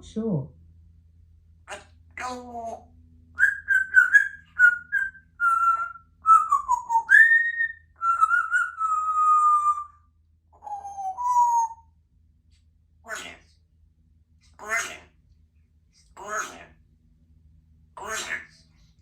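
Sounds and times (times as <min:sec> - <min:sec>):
parrot whistling notes: 0:03.4 - 0:10.0, 0:10.6 - 0:11.8.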